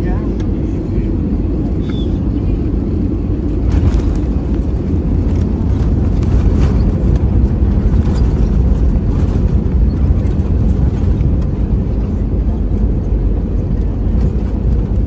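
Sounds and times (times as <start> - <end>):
jet cabin rumble: 0.0 - 15.0
faint rattles: 2.6 - 15.0.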